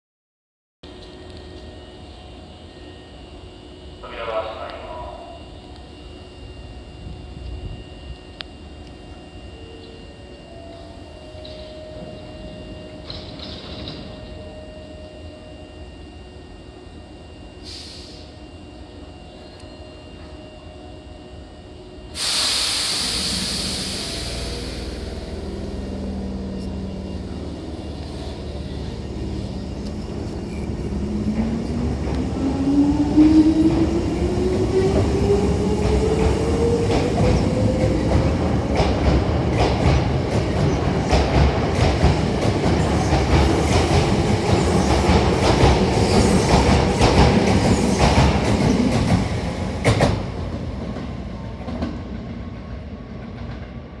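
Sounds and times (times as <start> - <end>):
electric train motor whine: 0.9 - 4.0, 4.7 - 38.8
train wheels rumbling: 22.2 - 54.0.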